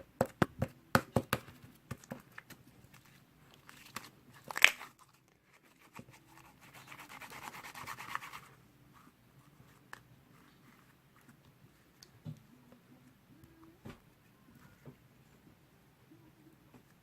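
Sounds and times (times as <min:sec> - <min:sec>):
slime squishing and rubbing: 0:02.0 - 0:11.9.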